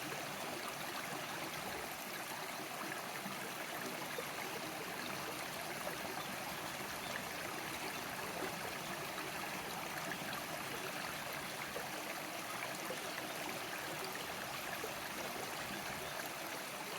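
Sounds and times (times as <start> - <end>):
river water flowing over stones: 0.0 - 16.9.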